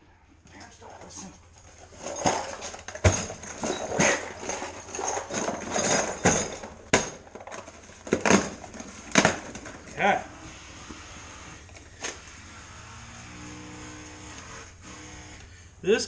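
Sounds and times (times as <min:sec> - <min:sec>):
hard objects knocking and clanking: 0:01.6 - 0:10.0.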